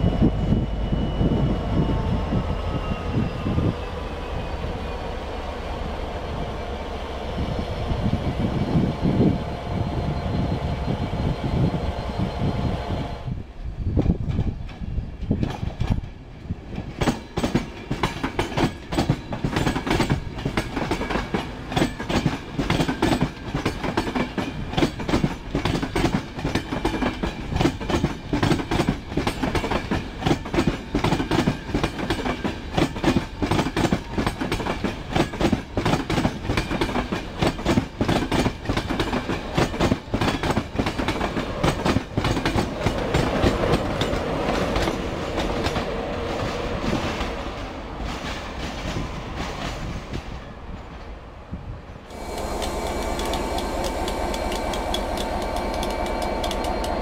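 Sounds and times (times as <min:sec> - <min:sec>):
locomotive hum: 0:00.0 - 0:57.0
train wheels clattering: 0:14.0 - 0:50.9, 0:52.1 - 0:57.0.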